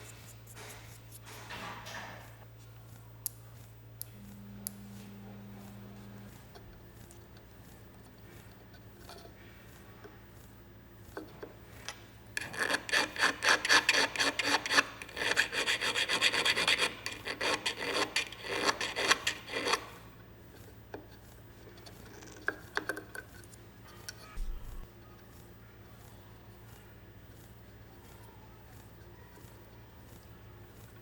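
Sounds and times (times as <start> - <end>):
file rasping on metal: 12.4 - 20.0.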